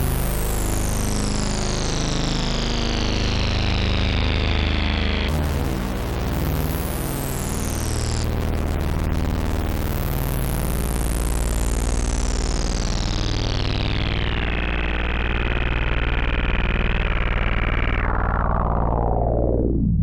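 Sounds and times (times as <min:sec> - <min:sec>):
low synthesizer drone: 0:00.0 - 0:20.0
resonant synthesizer filter sweep: 0:05.2 - 0:20.0
distorted synthesizer wash: 0:05.3 - 0:11.8.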